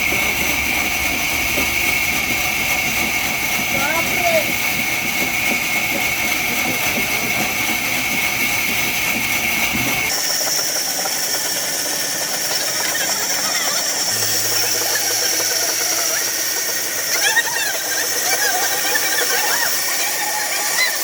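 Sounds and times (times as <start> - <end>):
sawmill machinery whining: 0.0 - 21.0.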